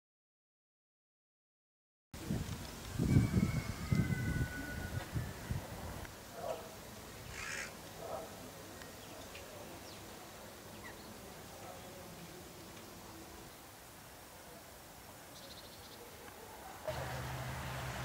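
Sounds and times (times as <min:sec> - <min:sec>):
birds harsh calls: 0:06.4 - 0:08.2.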